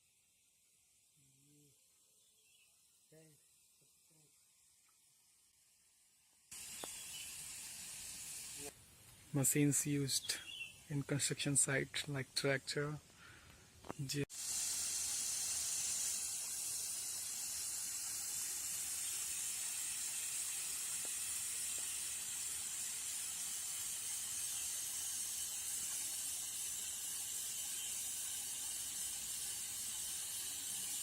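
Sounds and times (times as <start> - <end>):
steady high-pitched hiss: 0.0 - 31.0.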